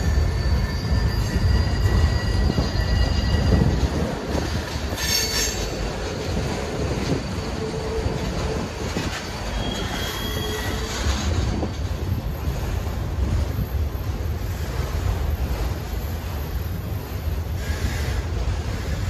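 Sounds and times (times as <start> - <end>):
wheels squealing: 0.0 - 12.4
wheels rumbling on rail: 0.0 - 19.0.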